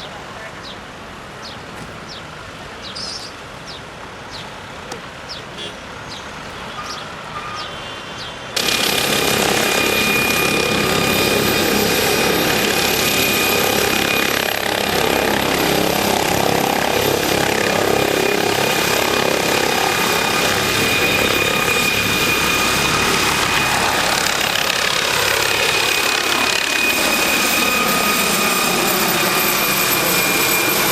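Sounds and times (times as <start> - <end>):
helicopter engine and rotor: 8.6 - 30.9.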